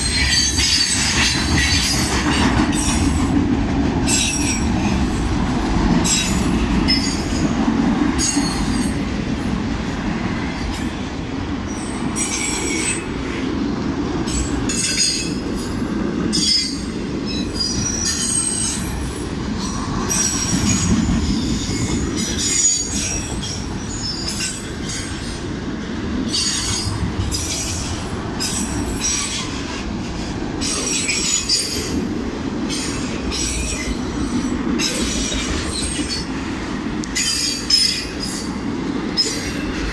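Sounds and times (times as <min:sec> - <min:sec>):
train wheels rumbling on rail: 0:00.0 - 0:39.9
high-pitched wheel squeal: 0:16.4 - 0:18.9.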